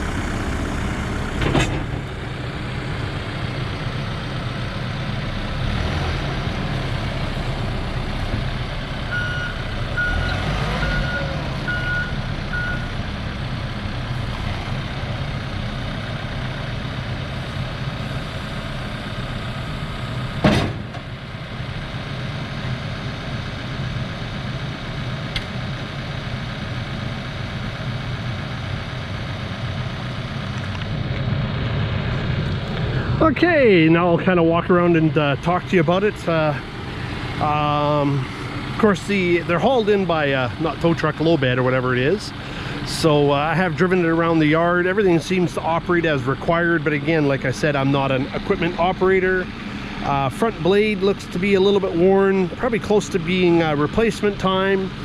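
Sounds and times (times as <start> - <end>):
backhoe diesel engine running: 0.0 - 55.0
sharp clunk: 1.4 - 2.1, 20.4 - 21.1
reverse alarm beeping: 9.1 - 12.9.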